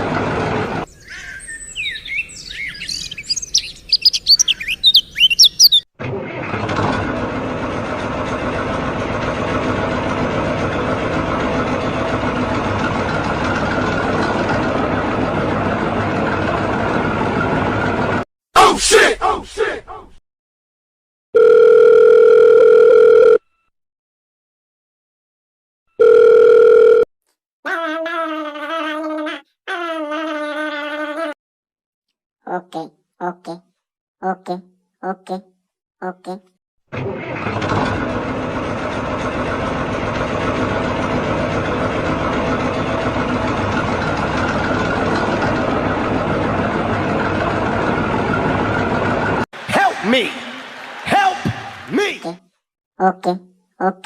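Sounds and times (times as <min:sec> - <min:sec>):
tractor engine idling: 0:03.5 - 0:18.2, 0:37.0 - 0:49.8.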